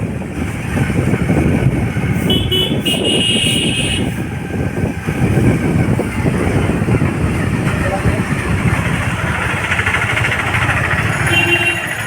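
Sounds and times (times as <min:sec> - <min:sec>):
road noise: 0:00.0 - 0:12.0
wind buffeting microphone: 0:00.0 - 0:12.0
vehicle horn toots: 0:02.2 - 0:04.2, 0:11.2 - 0:12.0.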